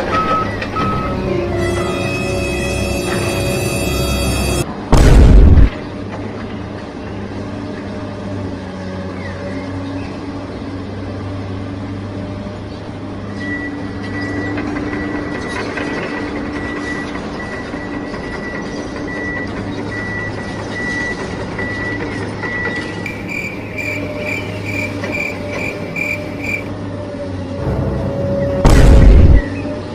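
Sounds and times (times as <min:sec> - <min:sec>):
pulsing high tone: 0:00.9 - 0:04.7.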